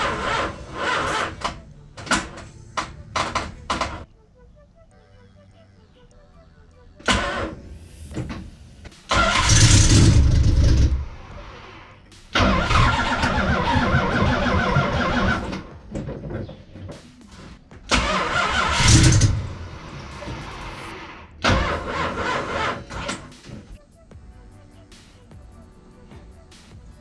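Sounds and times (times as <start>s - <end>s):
engine cranking on starter: 0.0s - 4.0s, 7.1s - 8.5s, 9.1s - 11.3s, 12.4s - 15.7s, 17.9s - 23.8s.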